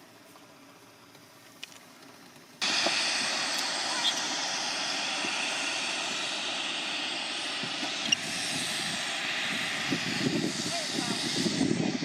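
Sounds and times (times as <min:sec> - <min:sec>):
light aircraft engine running: 0:00.0 - 0:12.0
rushing air: 0:02.6 - 0:12.0.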